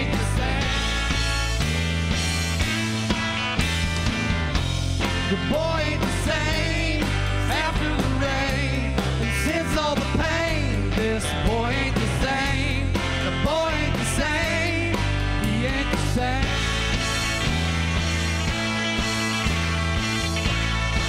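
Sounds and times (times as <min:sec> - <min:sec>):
lead singer's voice: 0:00.0 - 0:01.3, 0:05.1 - 0:16.8
rock band playing live: 0:00.0 - 0:21.0
steady bass: 0:00.0 - 0:21.0.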